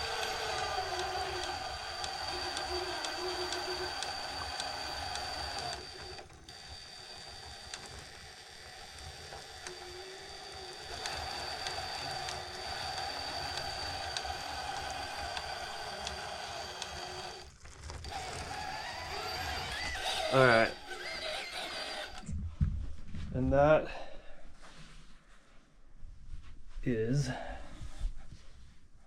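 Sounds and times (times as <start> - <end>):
electric motor and gears whining: 0.0 - 22.3.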